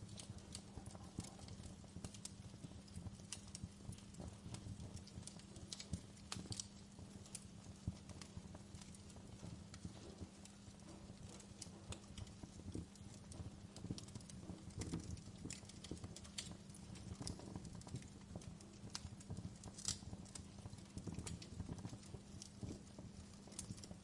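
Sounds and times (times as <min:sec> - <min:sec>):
fire low rumble: 0:00.0 - 0:24.0
wood fire crackling: 0:00.0 - 0:24.0.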